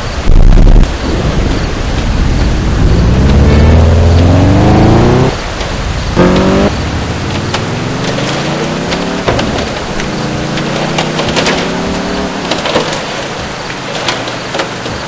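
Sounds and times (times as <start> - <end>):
car engine accelerating: 1.2 - 15.0
rain and hail striking a car: 5.4 - 15.0.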